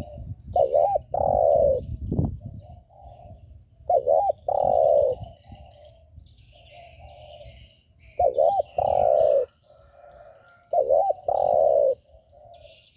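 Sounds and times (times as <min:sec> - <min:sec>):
dove cooing: 0:00.0 - 0:02.0, 0:02.6 - 0:12.9
small birds chirping: 0:00.0 - 0:12.9
faint cooing: 0:04.0 - 0:05.2, 0:08.2 - 0:12.7.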